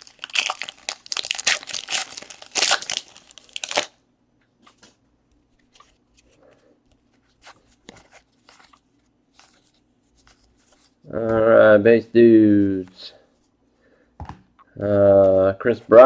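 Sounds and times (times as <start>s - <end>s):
wrapper tearing and crinkling: 0.0s - 4.0s.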